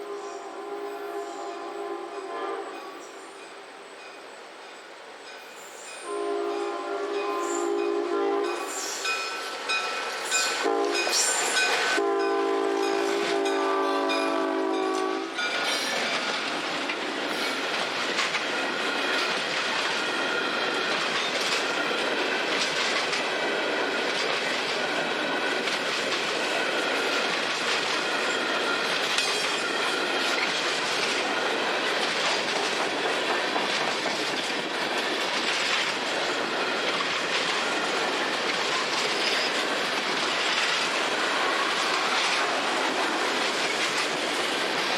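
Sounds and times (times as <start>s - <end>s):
locomotive air horn blasts: 0.0s - 3.0s, 6.0s - 8.8s, 10.6s - 15.4s
train wheels clattering over rails: 12.8s - 44.9s.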